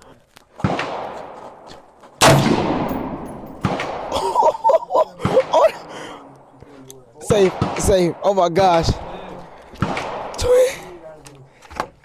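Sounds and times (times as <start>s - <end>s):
rifle shots echoing: 0.6s - 4.4s, 7.2s - 11.0s.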